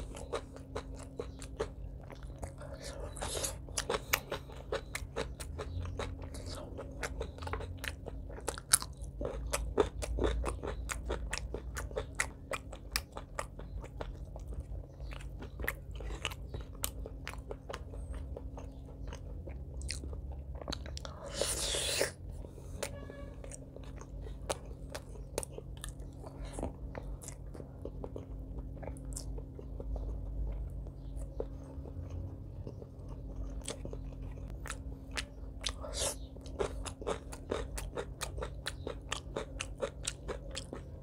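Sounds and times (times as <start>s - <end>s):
wet mouth chewing clicks: 22.8s - 41.0s.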